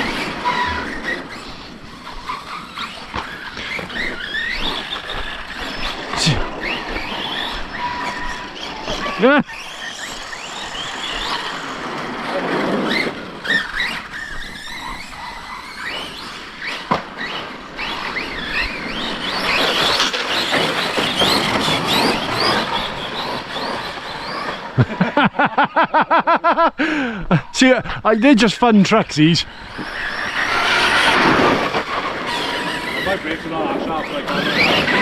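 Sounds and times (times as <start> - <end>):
electric motors whining: 0.0 - 26.0, 29.4 - 35.0.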